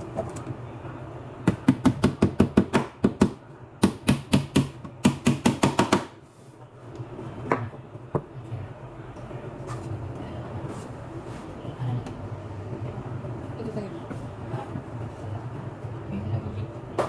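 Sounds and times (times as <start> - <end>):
steady low hum: 0.0 - 17.0
hammer striking nails: 1.5 - 6.1.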